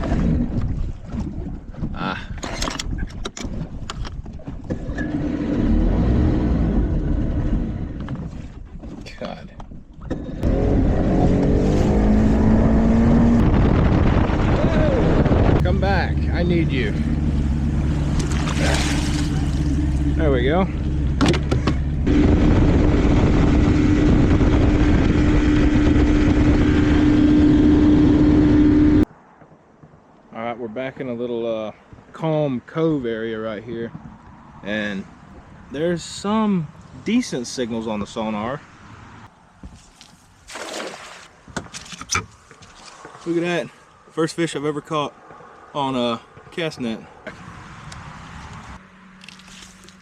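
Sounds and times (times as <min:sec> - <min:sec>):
rushing wind and water: 0:00.0 - 0:06.2, 0:10.9 - 0:20.2, 0:22.0 - 0:30.2, 0:38.8 - 0:48.8
outboard motor running: 0:00.0 - 0:29.0.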